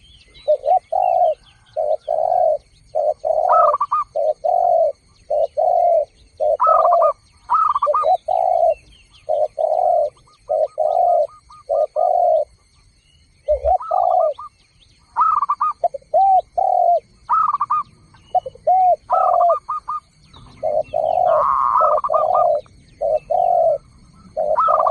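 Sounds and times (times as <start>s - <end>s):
doves cooing: 0.0s - 24.9s
faint small bird chirps: 0.0s - 24.9s.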